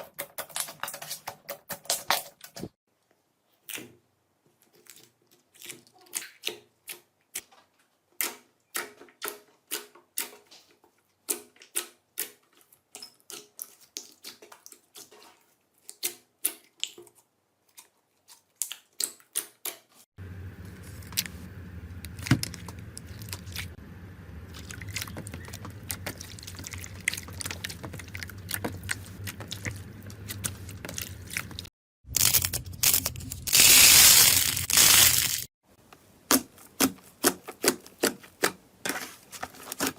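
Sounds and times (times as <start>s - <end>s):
steady low hum: 20.2s - 31.7s
slime crackling and popping: 30.3s - 35.5s.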